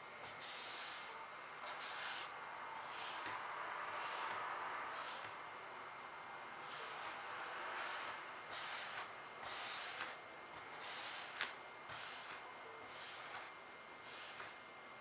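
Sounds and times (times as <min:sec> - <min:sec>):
paintbrush swishing on surface: 0:01.7 - 0:03.4.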